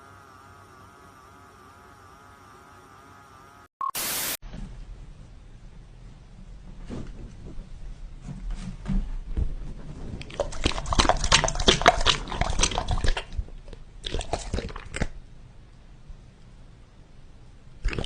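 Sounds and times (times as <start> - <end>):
animal mouth clicks and smacks: 10.2 - 15.2.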